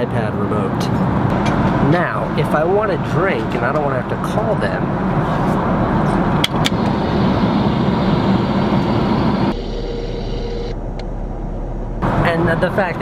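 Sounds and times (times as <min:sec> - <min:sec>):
airliner cabin drone: 0:01.3 - 0:13.0
motorized compartment humming: 0:04.8 - 0:12.1.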